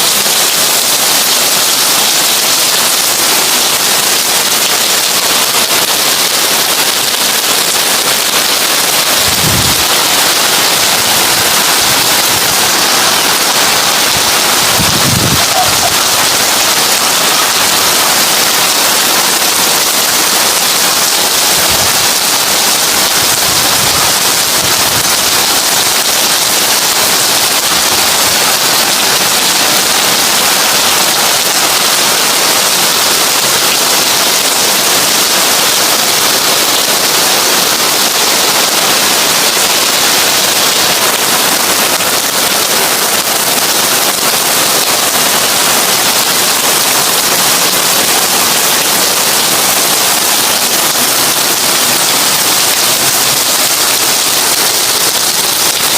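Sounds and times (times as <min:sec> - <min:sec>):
heavy rain on a tin roof: 0:00.0 - 0:55.9.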